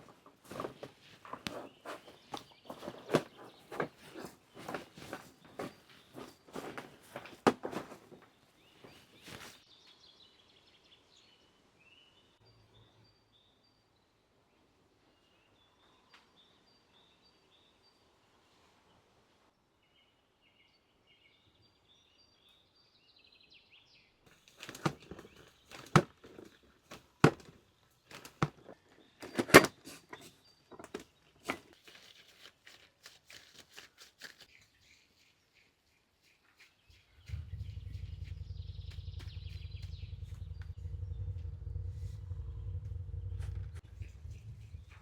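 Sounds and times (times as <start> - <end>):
faint bird chirps: 34.5 - 45.0
steady low hum: 37.0 - 45.0.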